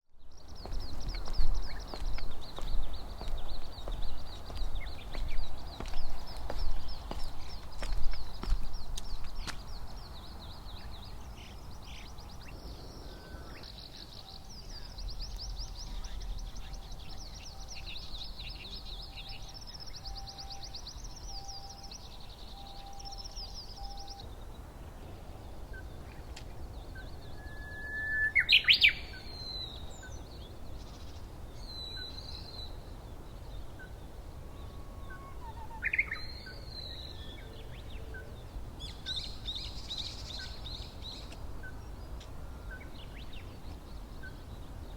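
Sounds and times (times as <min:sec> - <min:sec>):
birds chattering song: 0:00.3 - 0:44.9
bird calls: 0:33.4 - 0:44.9.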